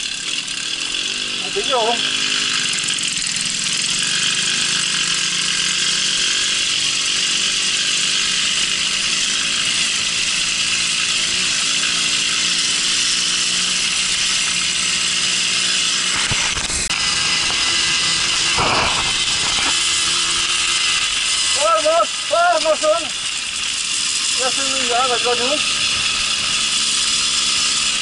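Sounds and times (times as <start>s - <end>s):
moped engine running: 0.0s - 28.0s.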